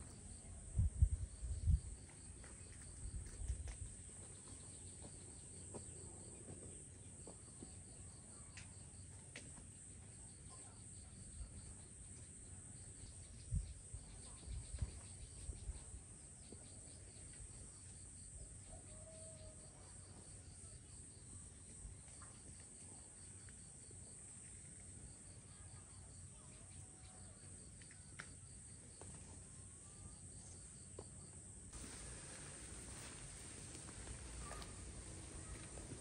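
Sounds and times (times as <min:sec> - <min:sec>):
insects chirping in trills: 0:00.0 - 0:36.0
steady high hiss: 0:31.7 - 0:36.0.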